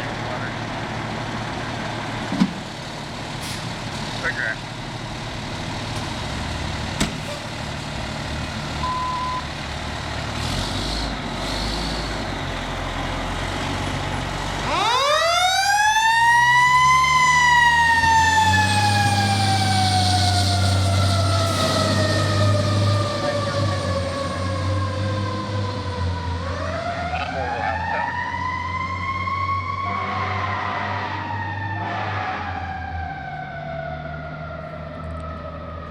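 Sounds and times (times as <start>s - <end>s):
diesel engine rumbling: 0.0s - 35.9s
mechanical siren wailing: 14.6s - 35.9s.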